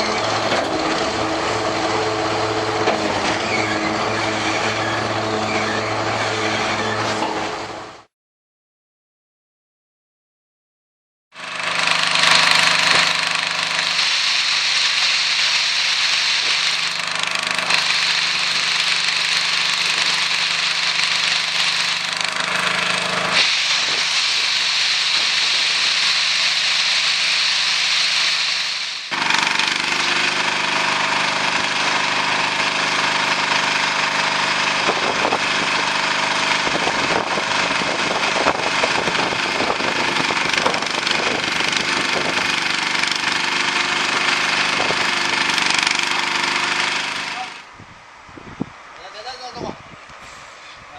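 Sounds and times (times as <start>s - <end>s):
boat engine running: 11.4s - 47.7s
strong hiss: 12.5s - 17.1s, 23.4s - 29.1s.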